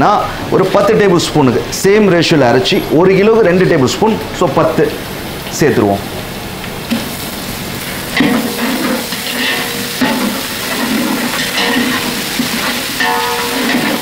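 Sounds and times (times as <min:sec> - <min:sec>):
onions sizzling in hot oil: 0:04.6 - 0:14.0
metal ladle scraping a pot: 0:08.2 - 0:14.0.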